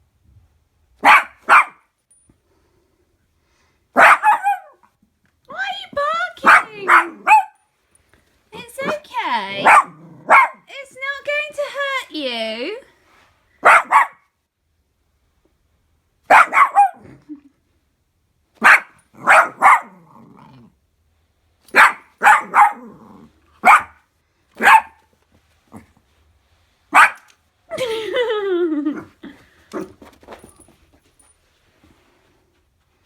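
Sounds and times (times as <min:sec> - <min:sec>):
puppy barking: 0:01.0 - 0:01.9, 0:04.0 - 0:04.9, 0:06.4 - 0:07.6, 0:09.6 - 0:10.7, 0:13.6 - 0:14.3, 0:16.3 - 0:17.2, 0:18.6 - 0:20.0, 0:21.7 - 0:23.0, 0:23.6 - 0:24.0, 0:24.6 - 0:25.1, 0:26.9 - 0:27.3.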